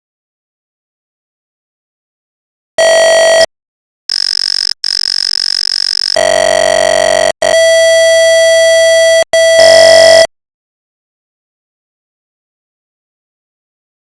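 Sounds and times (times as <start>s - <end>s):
electronic tones high and low: 4.1s - 10.3s.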